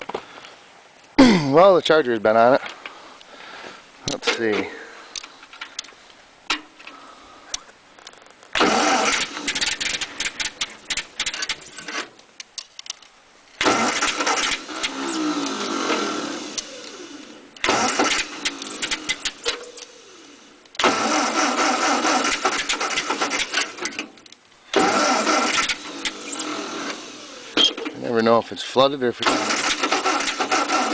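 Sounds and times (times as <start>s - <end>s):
tractor starter cranking engine: 8.6s - 12.1s, 13.6s - 28.2s, 29.2s - 30.9s.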